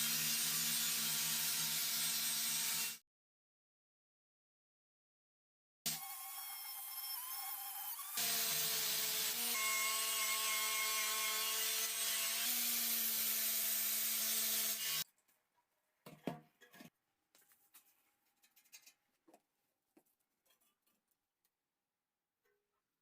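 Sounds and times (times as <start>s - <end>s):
power tool grinding metal: 5.9s - 15.0s.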